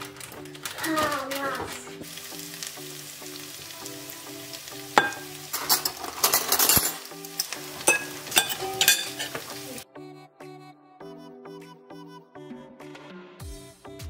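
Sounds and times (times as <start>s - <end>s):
rice sizzling in a pan: 0.0s - 9.8s.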